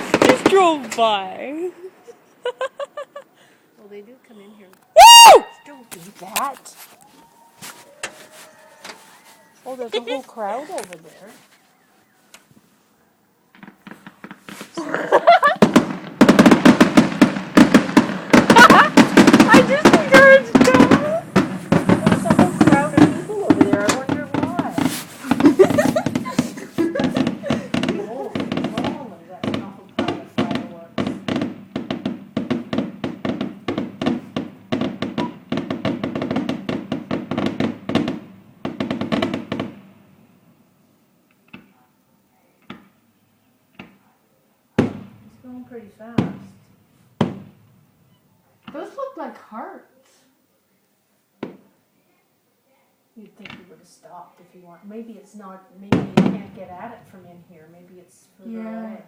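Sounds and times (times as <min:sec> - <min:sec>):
fireworks bangs and crackles: 0:00.0 - 0:01.6, 0:13.5 - 0:40.1, 0:44.8 - 0:47.7, 0:55.8 - 0:57.5.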